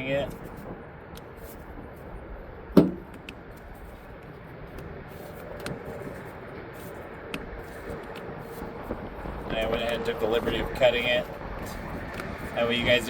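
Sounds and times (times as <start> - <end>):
steady background hum: 0.0 - 13.0
sharp metallic clank: 2.8 - 3.2.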